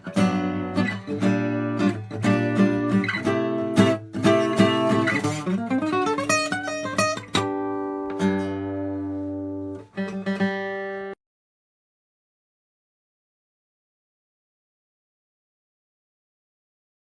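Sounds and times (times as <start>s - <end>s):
acoustic guitar strummed and picked: 0.0s - 11.2s.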